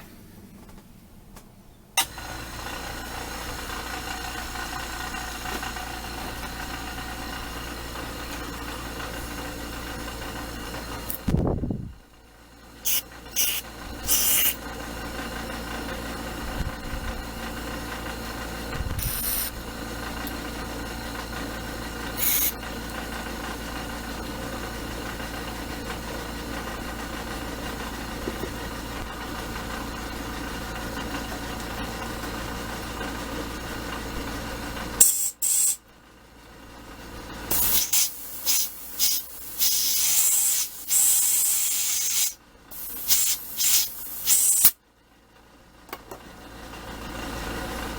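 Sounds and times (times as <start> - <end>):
mechanical hum: 0.0 - 47.9
hissing spray bursts: 12.8 - 14.6, 22.2 - 22.6, 35.0 - 35.8, 37.5 - 44.8.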